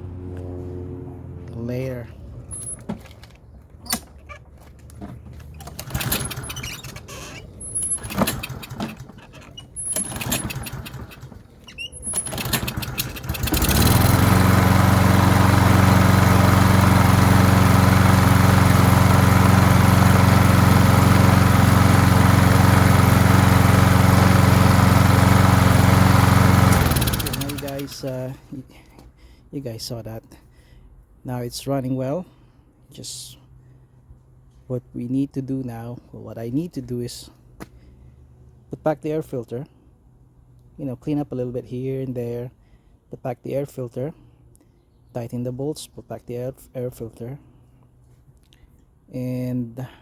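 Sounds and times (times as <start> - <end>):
lawn mower engine running: 5.0 - 28.5.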